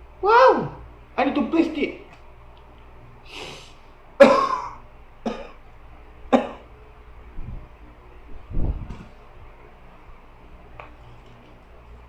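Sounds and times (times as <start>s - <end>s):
man coughing: 4.2s - 5.6s, 6.3s - 6.7s.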